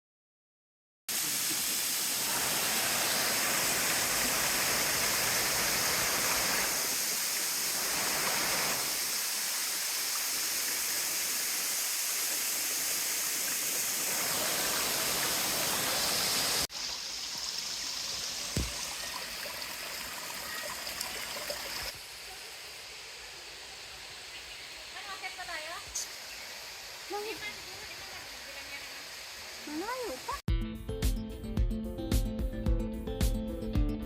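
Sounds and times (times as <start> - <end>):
water rushing over rocks: 1.1 - 16.9, 18.0 - 22.0
short knock: 18.6 - 18.8.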